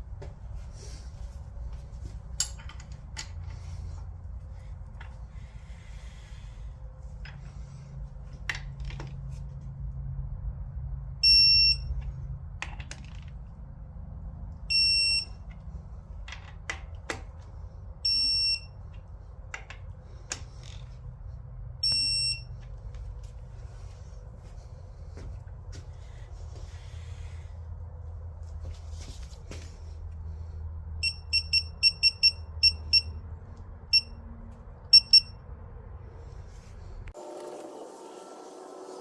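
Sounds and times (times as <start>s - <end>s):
high electronic beeps: 31.0s - 33.1s, 34.9s - 35.4s.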